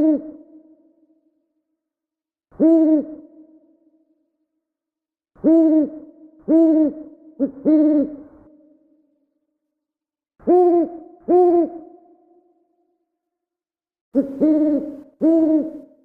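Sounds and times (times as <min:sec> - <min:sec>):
owl hooting: 0:00.0 - 0:00.5, 0:02.5 - 0:03.4, 0:05.4 - 0:08.5, 0:10.4 - 0:12.0, 0:14.2 - 0:16.0.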